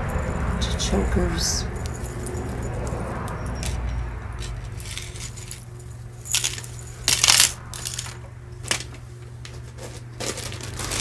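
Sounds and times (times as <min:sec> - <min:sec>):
jewelry clinking and rattling: 0:01.4 - 0:08.8.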